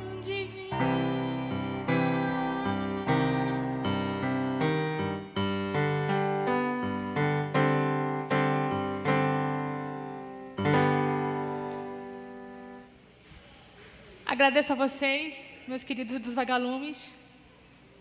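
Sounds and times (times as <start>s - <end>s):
piano keyboard chords: 0.0s - 13.0s.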